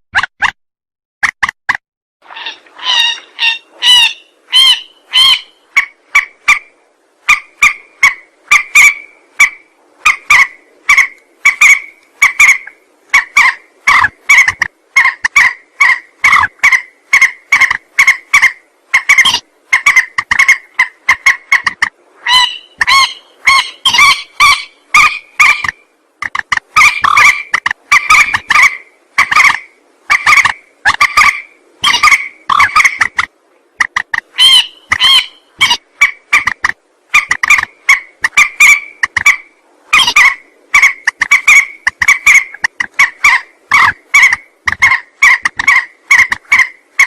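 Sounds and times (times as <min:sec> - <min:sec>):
harsh bird call notes: 0:22.2 - 0:25.7, 0:34.3 - 0:36.5.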